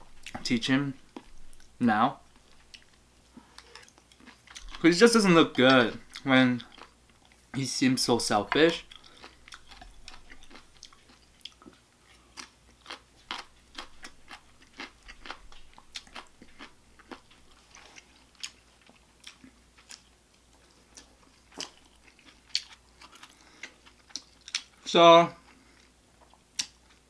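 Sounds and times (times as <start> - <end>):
chewing and biting food: 2.3 - 4.9, 5.5 - 7.4, 8.7 - 24.8.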